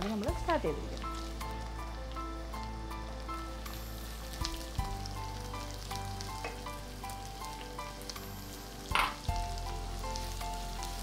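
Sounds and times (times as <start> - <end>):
onions sizzling in hot oil: 0.0 - 11.0
soft background music: 0.0 - 11.0.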